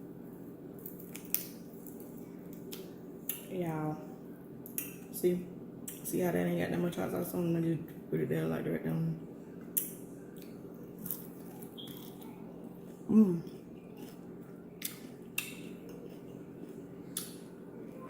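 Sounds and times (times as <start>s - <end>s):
chewing crunches: 0.8s - 3.5s, 9.6s - 18.0s
person humming mm: 13.1s - 13.5s.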